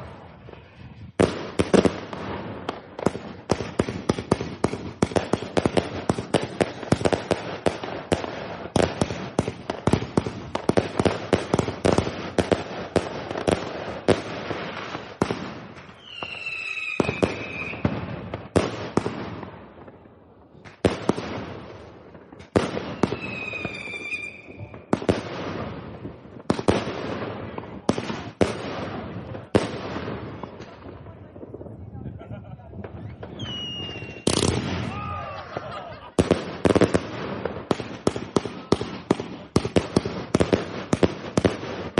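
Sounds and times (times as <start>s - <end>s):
firework bangs: 0.0s - 41.9s
firework whistling: 15.8s - 18.1s, 22.6s - 25.2s, 32.9s - 35.7s.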